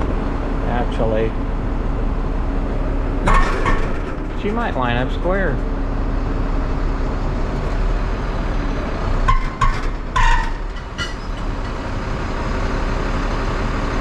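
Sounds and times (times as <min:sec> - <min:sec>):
truck engine running: 0:00.0 - 0:14.0
high-pitched squeals: 0:09.3 - 0:11.8.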